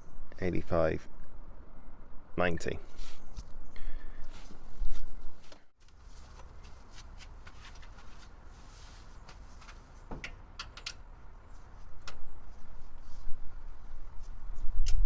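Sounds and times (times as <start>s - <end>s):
hand tools clicking and knocking: 10.1s - 11.0s.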